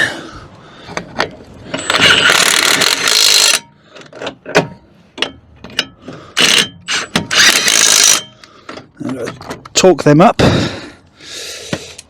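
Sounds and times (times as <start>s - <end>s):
ratchet wrench clicking: 1.8s - 3.6s, 6.4s - 8.3s.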